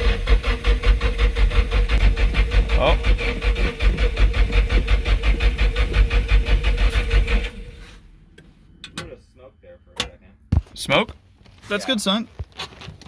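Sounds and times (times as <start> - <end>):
engine cranking on starter motor: 0.0 - 8.2.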